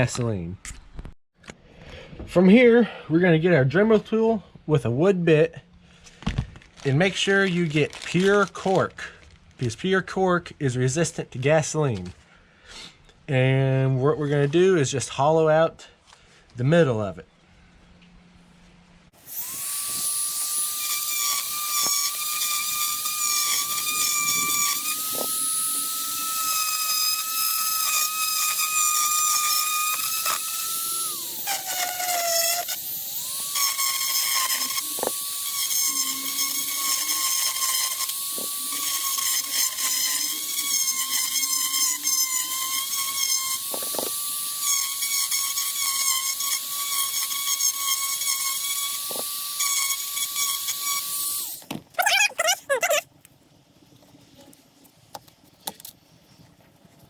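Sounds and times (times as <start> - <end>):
rotary tool whining: 19.2 - 53.1.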